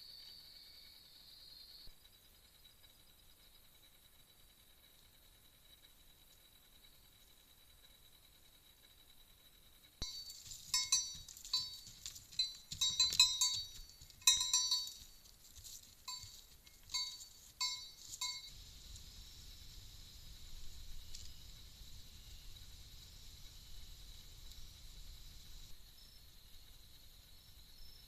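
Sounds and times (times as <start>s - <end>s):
small metal bell clinking: 10.0s - 18.6s.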